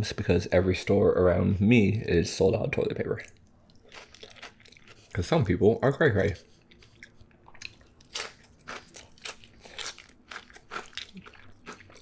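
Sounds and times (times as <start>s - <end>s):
crunchy chewing: 3.2s - 5.4s, 6.3s - 12.0s.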